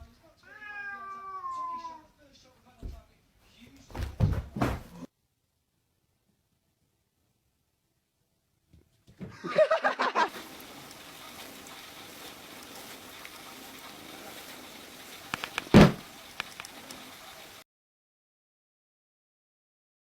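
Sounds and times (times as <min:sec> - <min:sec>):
loud thump: 0:04.0 - 0:05.0, 0:15.7 - 0:16.0
background hiss: 0:09.4 - 0:17.6
clicks: 0:15.3 - 0:15.7.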